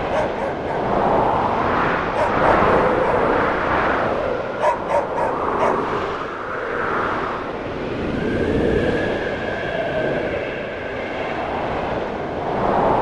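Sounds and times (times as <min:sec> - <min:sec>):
distant dog barking: 0:00.0 - 0:01.2, 0:02.0 - 0:03.5, 0:04.4 - 0:06.0
gusting snowstorm wind: 0:00.0 - 0:13.0.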